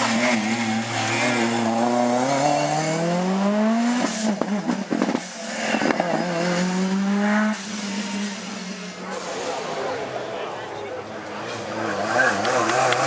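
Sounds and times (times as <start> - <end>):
rally car engine accelerating: 0.0 - 13.0.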